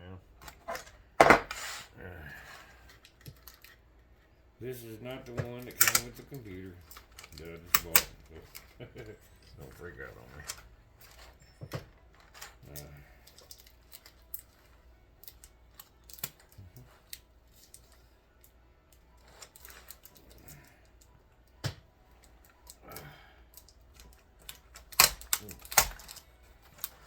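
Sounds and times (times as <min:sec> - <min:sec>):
plastic keyboard clicks and clatter: 0:23.6 - 0:27.0.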